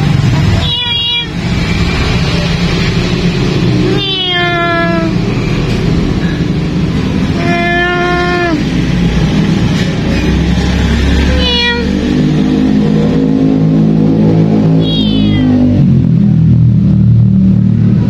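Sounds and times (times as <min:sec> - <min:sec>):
cat meowing: 0:00.6 - 0:01.5, 0:03.8 - 0:05.4, 0:07.3 - 0:08.7, 0:11.2 - 0:12.0, 0:14.7 - 0:15.8.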